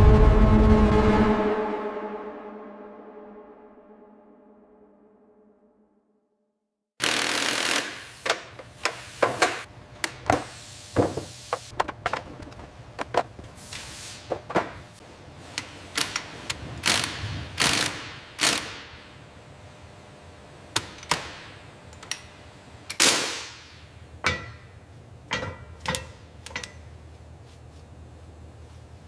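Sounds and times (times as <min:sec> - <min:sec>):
tools knocking on metal: 0:24.2 - 0:24.7, 0:25.3 - 0:26.8.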